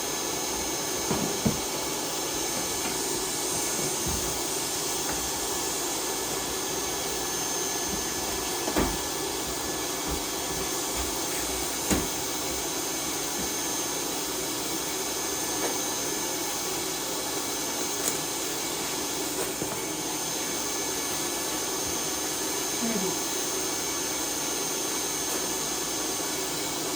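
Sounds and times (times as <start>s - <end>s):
shop vacuum running: 0.0s - 26.9s.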